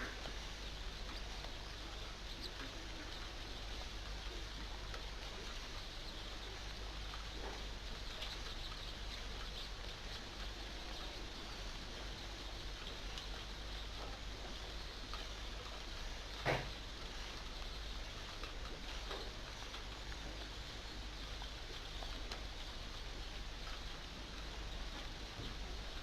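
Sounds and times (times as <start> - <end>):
faint ticks: 0.0 - 26.0
rain hissing and pattering: 0.0 - 26.0.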